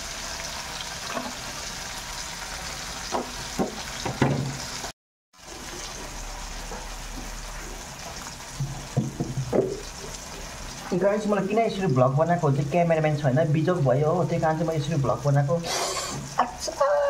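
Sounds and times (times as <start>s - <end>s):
onion and tomato sizzling in oil: 0.0s - 17.0s.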